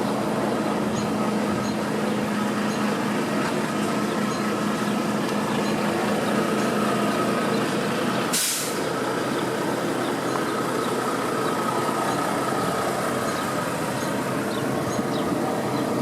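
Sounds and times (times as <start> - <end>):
diesel mower engine running: 0.0 - 16.0
short hiss: 8.3 - 8.8.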